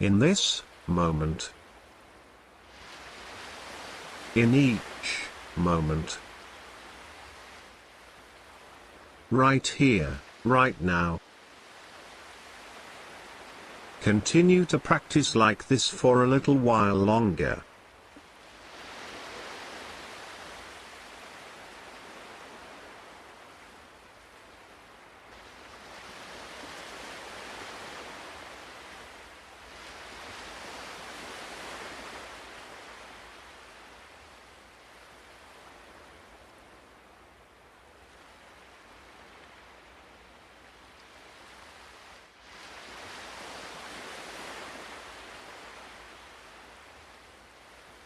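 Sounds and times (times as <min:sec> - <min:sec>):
ocean surf rushing: 0:00.0 - 0:01.5, 0:02.7 - 0:17.6, 0:41.2 - 0:48.0.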